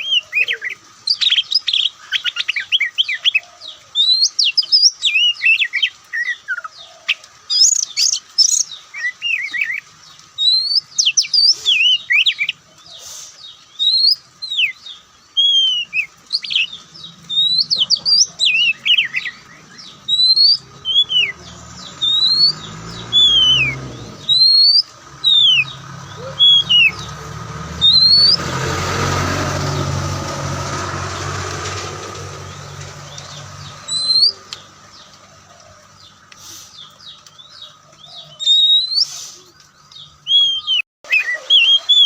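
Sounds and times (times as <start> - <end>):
bird singing whistled song: 4.0 - 6.7, 7.5 - 12.6, 13.4 - 27.2, 27.8 - 28.5, 33.1 - 34.7, 36.8 - 42.0.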